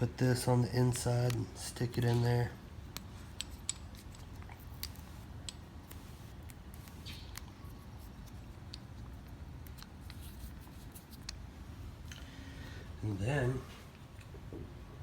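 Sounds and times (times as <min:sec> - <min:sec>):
light clicks and taps of metal parts: 0:00.9 - 0:11.4.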